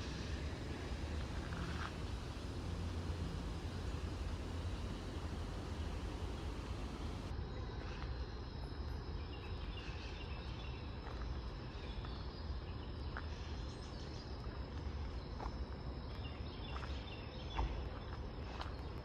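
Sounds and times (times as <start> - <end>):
faint bird chirps: 0.0 - 7.3
low wind rumble: 0.0 - 7.3.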